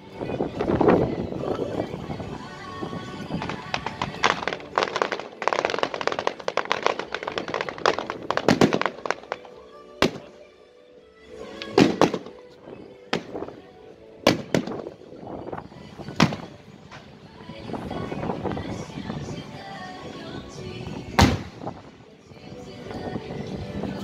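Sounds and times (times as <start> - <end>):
fireworks crackling: 3.1 - 10.4, 11.6 - 13.7, 14.3 - 15.0, 16.0 - 17.2
aerial shells bursting with bangs: 3.4 - 10.3, 11.8 - 12.4, 14.3 - 14.8.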